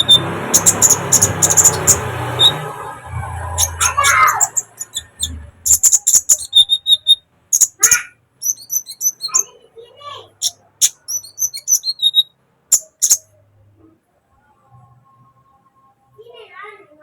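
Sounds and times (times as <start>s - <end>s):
sunbird singing fast chatter: 0.0s - 9.6s, 10.3s - 13.2s.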